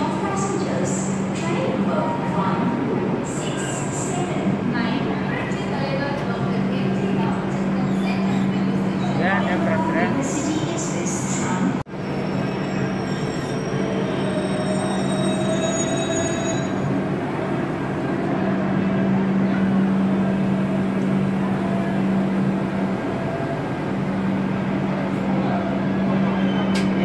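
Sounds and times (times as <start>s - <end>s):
train low hum: 0.0s - 27.0s.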